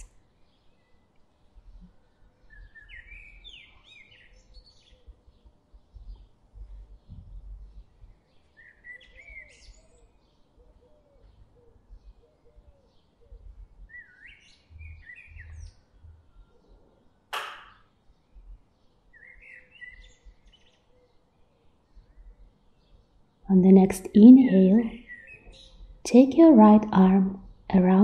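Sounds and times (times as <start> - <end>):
songbirds chirping: 0.0 - 28.0
wind rumble on microphone: 5.9 - 8.2.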